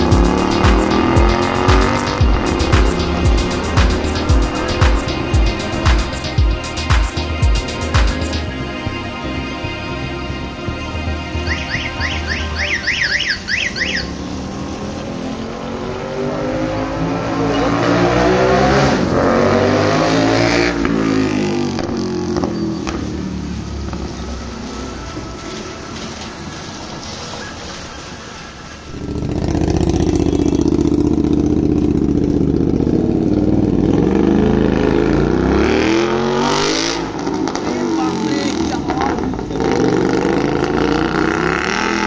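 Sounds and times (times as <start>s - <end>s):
motorcycle loud exhaust: 0.0s - 8.6s, 28.9s - 42.0s.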